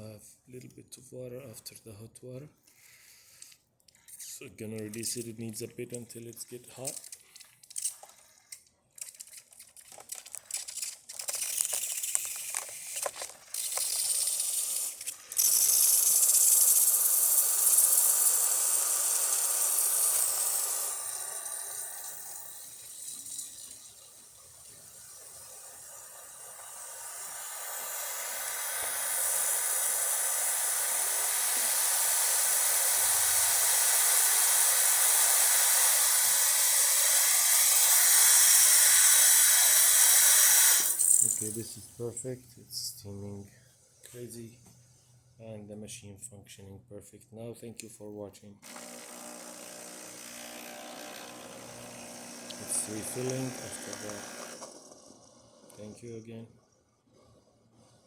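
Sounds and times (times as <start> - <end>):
steam wand sputtering water: 6.8 - 41.8, 50.2 - 55.8
steam hissing: 13.5 - 42.1, 50.9 - 55.9.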